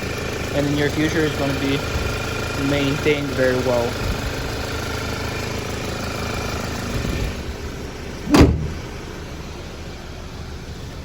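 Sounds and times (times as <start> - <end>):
car engine idling: 0.0 - 11.0
loud thump: 8.3 - 9.0.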